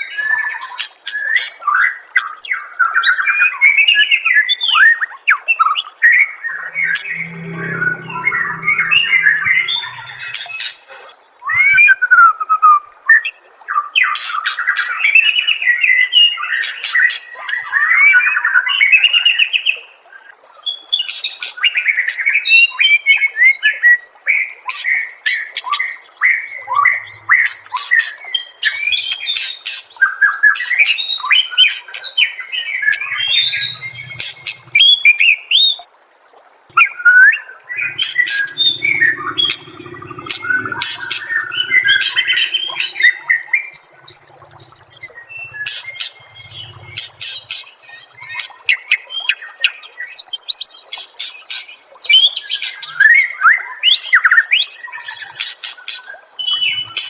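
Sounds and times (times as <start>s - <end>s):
songbird whistling and warbling: 36.8s - 47.4s.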